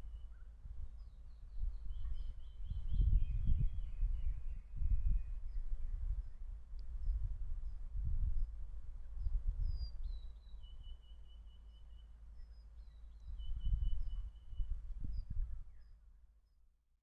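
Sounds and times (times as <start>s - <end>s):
faint bird chirps: 0.0s - 7.8s, 9.0s - 16.6s
wind buffeting microphone: 0.0s - 10.3s, 13.3s - 15.8s
songbird singing: 0.0s - 16.6s.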